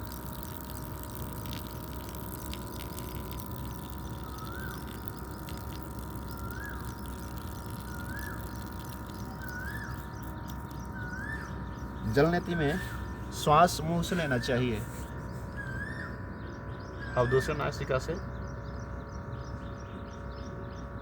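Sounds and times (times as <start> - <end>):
bird whistling call: 3.8 - 13.2, 15.4 - 16.2, 17.0 - 17.6.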